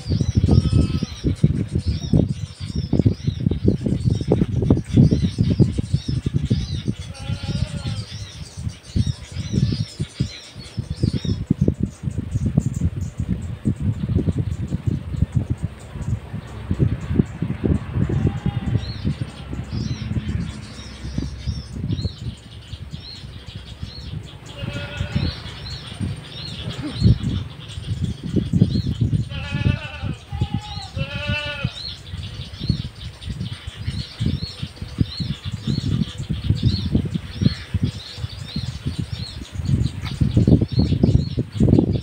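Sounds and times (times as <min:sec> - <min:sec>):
low gusty rumble: 0:00.0 - 0:42.0
small birds chirping: 0:00.0 - 0:42.0
animal quavering calls: 0:26.6 - 0:27.6.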